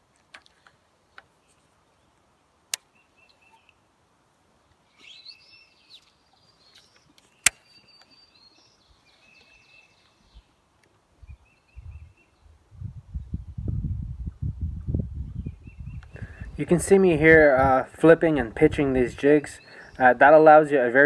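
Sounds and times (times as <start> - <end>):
birds chirping: 4.9 - 10.5, 15.4 - 21.0.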